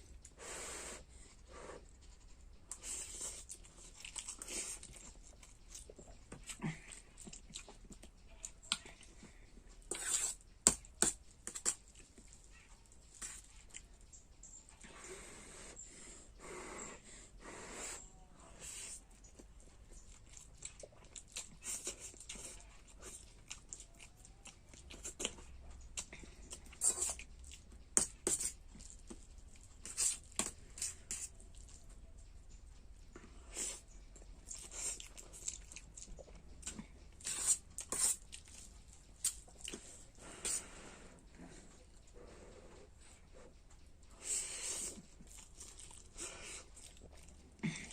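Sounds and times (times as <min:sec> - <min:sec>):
person chewing and slurping noodles: 0:00.2 - 0:08.2, 0:18.6 - 0:31.8, 0:33.1 - 0:47.9.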